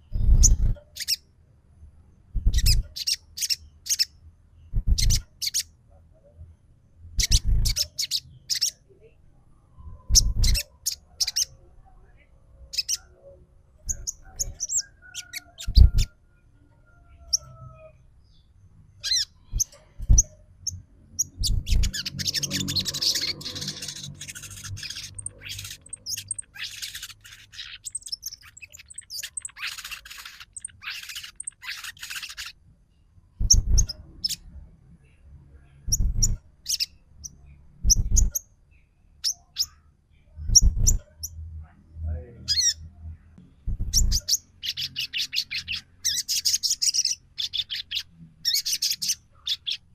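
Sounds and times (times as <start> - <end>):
bird chirps and harsh calls: 0.0 - 1.3, 2.3 - 5.8, 7.1 - 8.9, 9.8 - 11.6, 12.6 - 41.4, 42.4 - 49.9
rapid bird chattering: 0.1 - 1.2, 2.4 - 4.1, 4.7 - 5.7, 7.2 - 8.8, 10.1 - 11.5, 13.8 - 16.1, 19.0 - 32.6, 33.4 - 34.4, 35.9 - 36.9, 43.7 - 49.9.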